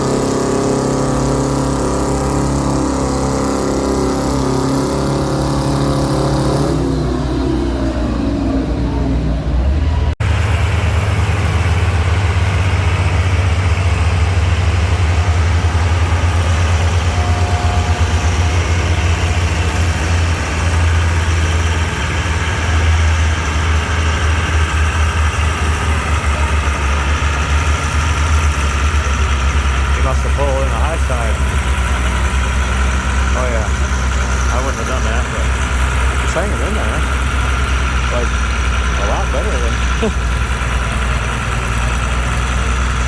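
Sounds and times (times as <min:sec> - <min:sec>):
tractor engine running: 0:00.0 - 0:43.0.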